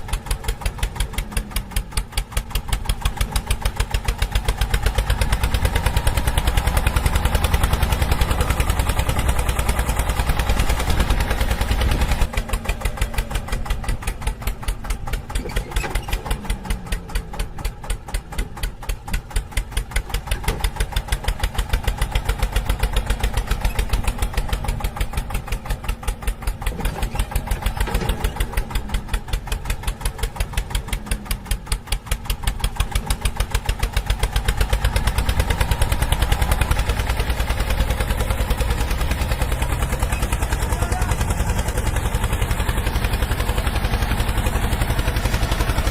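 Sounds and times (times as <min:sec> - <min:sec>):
small model engine running: 0:39.9 - 0:45.9.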